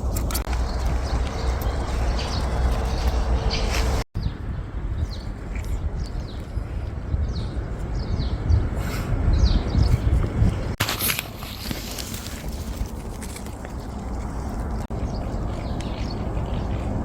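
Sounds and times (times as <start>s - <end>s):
small birds chirping: 0.0s - 10.8s, 13.2s - 17.0s
steady low rumble: 0.0s - 10.8s.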